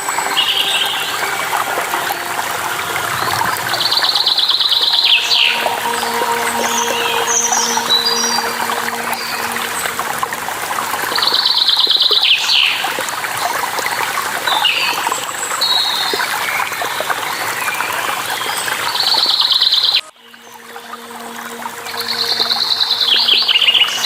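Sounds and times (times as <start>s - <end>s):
waterfall rushing: 0.0s - 15.5s.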